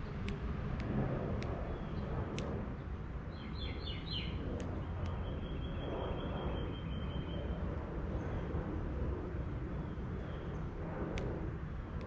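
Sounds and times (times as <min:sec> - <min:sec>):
low background rumble: 0:00.0 - 0:12.0
sharp ticks: 0:00.2 - 0:01.6, 0:02.3 - 0:02.6
songbird whistling and trilling: 0:03.3 - 0:04.4, 0:05.1 - 0:07.6.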